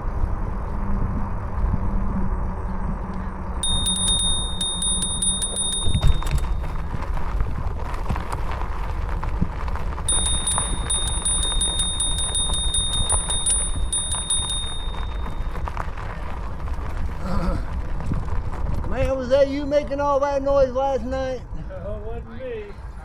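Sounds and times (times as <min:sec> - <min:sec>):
rumble of wind and tyres: 0:00.0 - 0:23.0
bicycle freewheel ticking: 0:03.6 - 0:06.8, 0:10.1 - 0:15.6.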